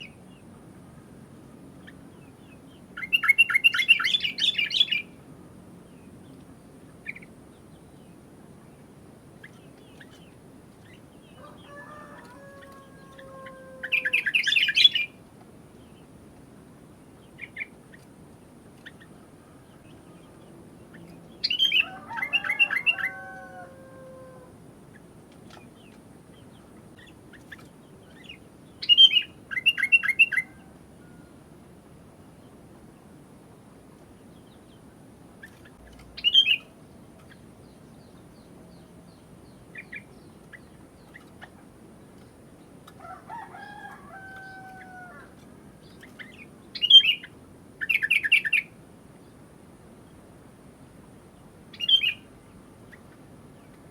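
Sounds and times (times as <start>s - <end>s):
bird rapid chattering song: 1.8s - 5.2s, 13.8s - 15.2s, 18.8s - 23.0s, 24.9s - 30.5s, 34.3s - 42.6s, 45.8s - 48.7s, 51.7s - 53.9s.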